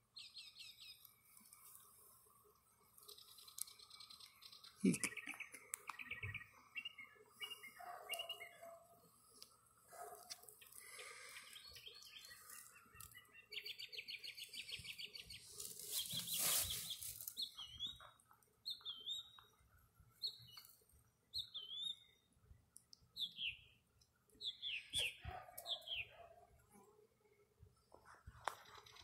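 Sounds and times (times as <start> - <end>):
rustling noise: 15.4 - 17.4.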